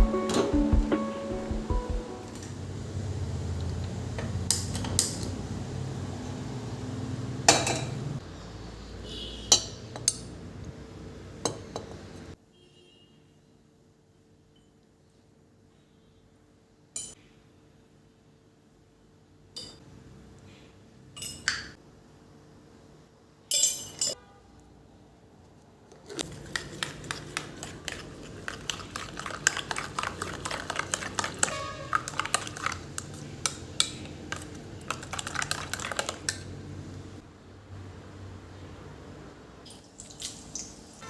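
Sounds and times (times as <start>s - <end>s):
dishes and cutlery clinking: 23.5s - 24.2s.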